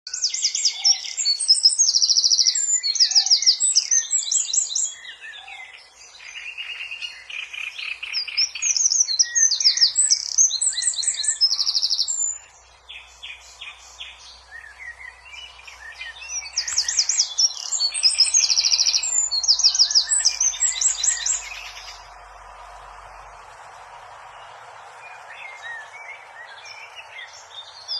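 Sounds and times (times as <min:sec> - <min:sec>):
small bird trilling and chirping: 0:00.1 - 0:22.2.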